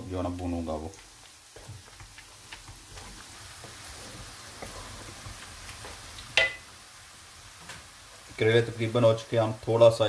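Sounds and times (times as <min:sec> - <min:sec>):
meat sizzling in oil: 0:00.0 - 0:10.0
wooden spoon scraping a pot: 0:01.0 - 0:06.1.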